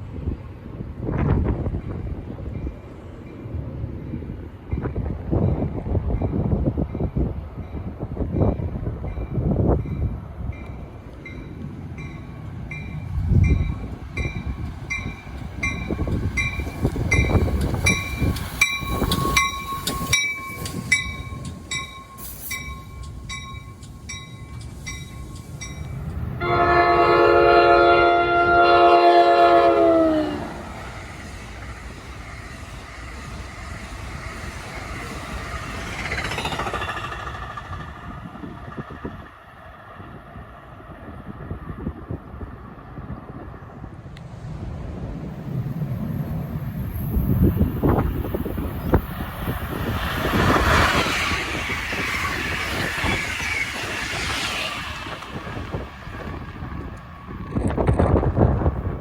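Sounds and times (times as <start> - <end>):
train passing on rails: 0.0 - 59.0
train horn blast: 26.4 - 30.7.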